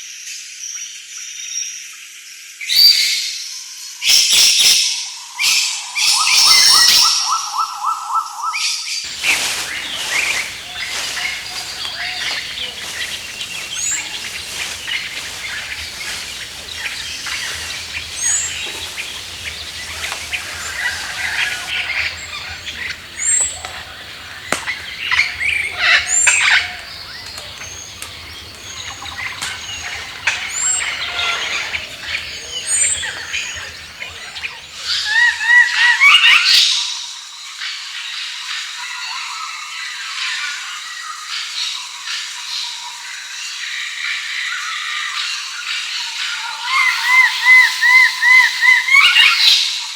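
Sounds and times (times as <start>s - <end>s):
high hooked bird call notes: 9.1s - 35.5s, 46.8s - 49.7s
wild birds chirping and calling: 9.1s - 35.6s, 46.7s - 49.7s.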